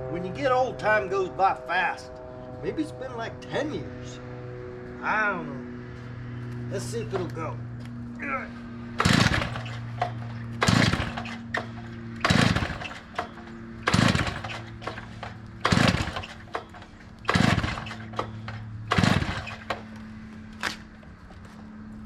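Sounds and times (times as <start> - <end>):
starter cord yanked: 9.0 - 20.0.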